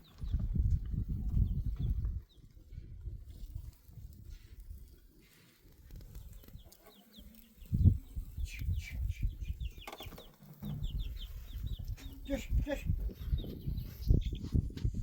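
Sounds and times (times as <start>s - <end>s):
high falling bird chirps: 6.2s - 14.4s.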